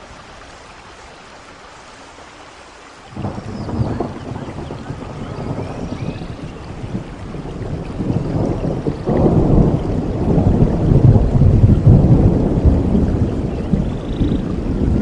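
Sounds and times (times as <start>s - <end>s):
rain: 0.0s - 15.0s
thunder rumbling: 3.1s - 15.0s.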